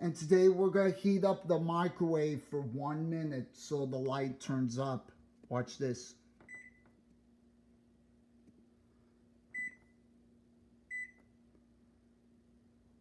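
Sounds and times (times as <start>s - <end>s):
faint low hum: 0.0s - 13.0s
microwave keypad beeps: 6.5s - 6.8s, 9.6s - 9.9s, 10.9s - 11.2s.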